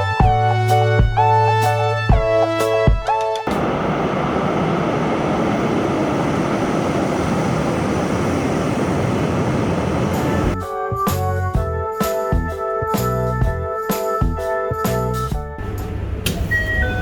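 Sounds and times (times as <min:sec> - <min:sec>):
moving vehicle rumbling: 0:03.5 - 0:10.6, 0:15.6 - 0:17.0.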